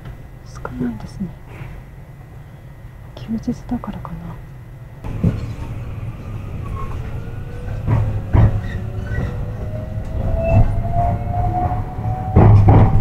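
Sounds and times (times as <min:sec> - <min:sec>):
train running rumble: 0:00.0 - 0:13.0
wheels clunking over rail joints: 0:05.0 - 0:13.0.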